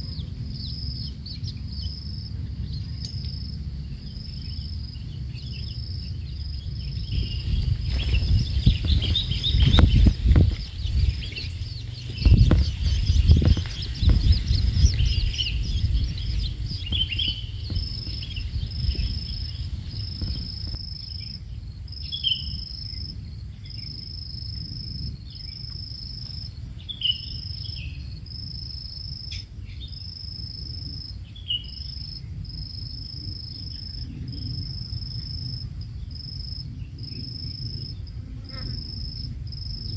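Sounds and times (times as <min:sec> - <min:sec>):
loud low rumble: 0:00.0 - 0:21.0
young shrikes chirping: 0:00.0 - 0:21.4
cricket chirping: 0:00.0 - 0:39.9.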